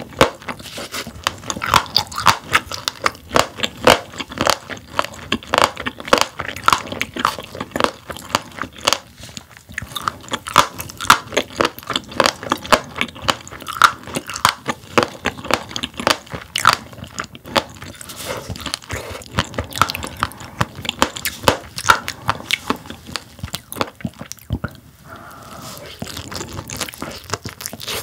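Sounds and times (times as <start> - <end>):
crunchy chewing of fish eggs: 0.0 - 28.0.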